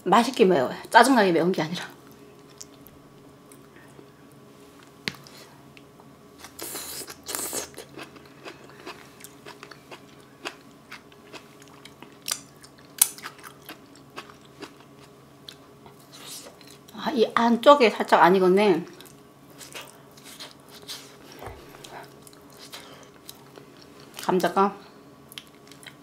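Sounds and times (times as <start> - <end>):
person chewing food: 6.4 - 16.9, 19.0 - 24.3, 25.3 - 26.0.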